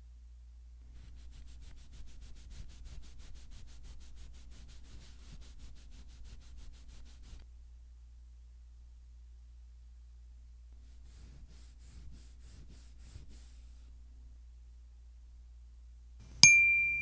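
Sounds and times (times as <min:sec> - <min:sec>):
cloth rag rubbing on wood: 0:00.9 - 0:07.4, 0:10.8 - 0:14.1.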